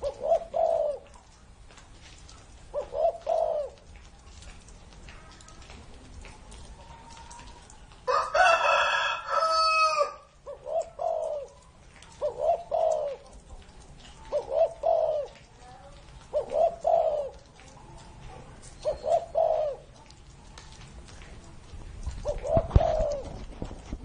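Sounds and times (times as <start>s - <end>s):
dove cooing: 0.0s - 1.4s, 2.3s - 4.1s, 6.7s - 20.7s, 22.0s - 23.9s.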